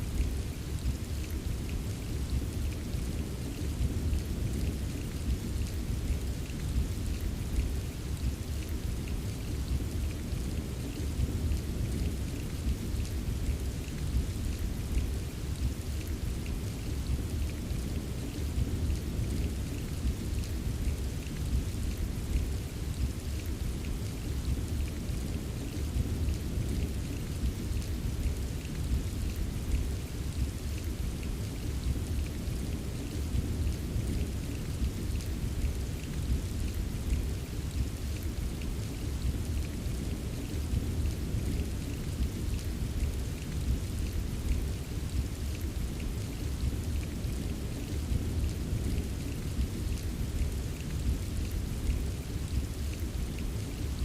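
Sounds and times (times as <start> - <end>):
rain patter: 0.0 - 54.0.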